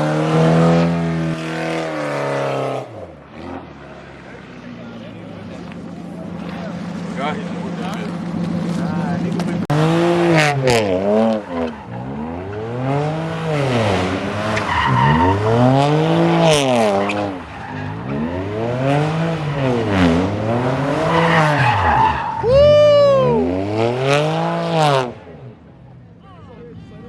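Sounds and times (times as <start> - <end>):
car engine revving: 0.0 - 26.1
tyre squeal: 21.0 - 23.4.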